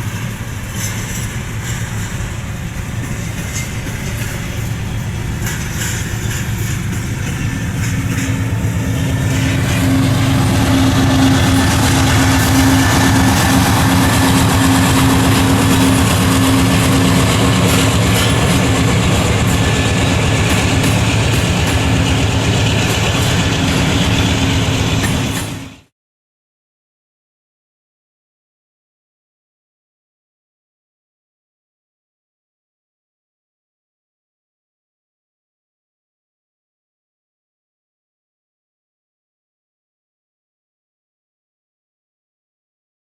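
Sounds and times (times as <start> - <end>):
train rolling past: 0.0 - 25.9.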